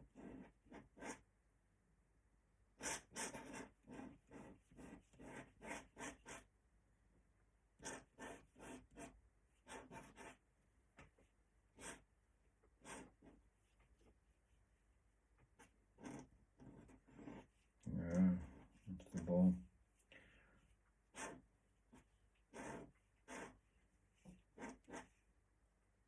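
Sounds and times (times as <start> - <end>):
pen scratching on paper: 0.0 - 1.2, 2.8 - 6.5, 7.8 - 10.4, 11.8 - 12.1, 12.8 - 14.1, 15.5 - 17.8, 18.4 - 19.3, 21.1 - 25.2.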